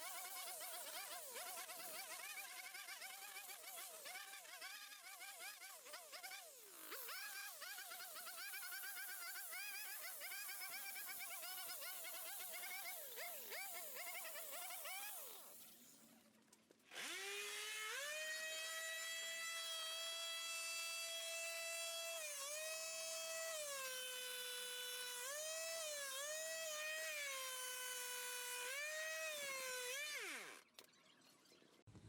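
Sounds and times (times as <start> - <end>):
power tool motor whining: 16.9 - 30.9.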